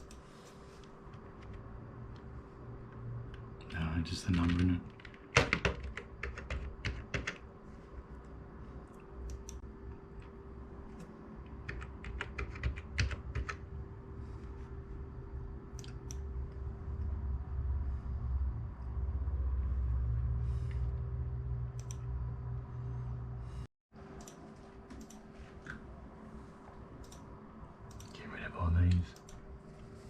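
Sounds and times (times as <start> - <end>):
steady low hum: 0.0 - 30.0
computer keyboard typing: 4.1 - 7.5, 11.6 - 13.6
low rumble: 13.6 - 23.7.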